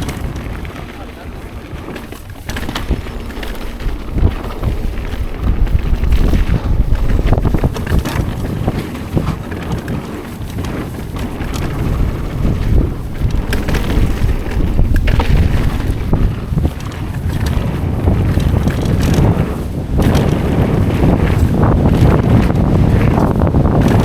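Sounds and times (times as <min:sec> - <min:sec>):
bike tyre rumble: 0:00.0 - 0:24.0
knocks and rattles over bumps: 0:00.0 - 0:24.0
wind buffeting microphone: 0:00.0 - 0:24.0.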